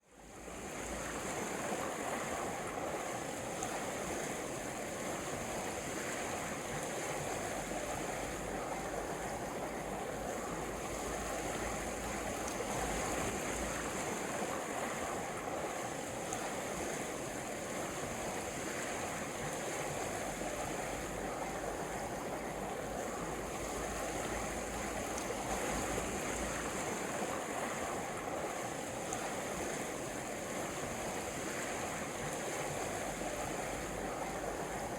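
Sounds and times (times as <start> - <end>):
river water rushing: 0.2 - 34.9.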